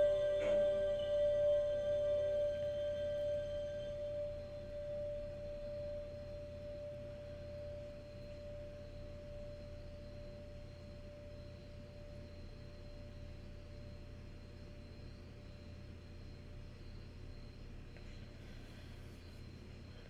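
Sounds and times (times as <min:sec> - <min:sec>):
sustained ringing note: 0:00.0 - 0:15.6
low steady hum: 0:00.0 - 0:20.0.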